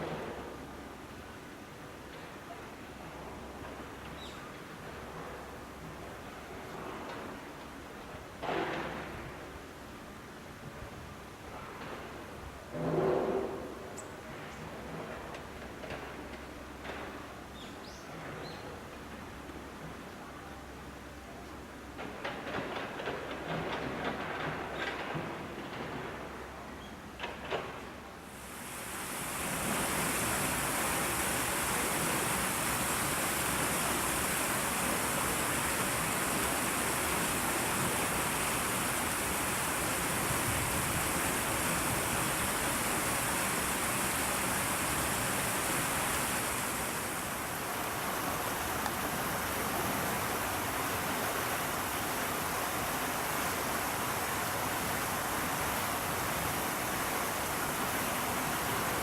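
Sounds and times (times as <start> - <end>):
high hiss: 28.1 - 59.0
steady rushing noise: 28.2 - 59.0.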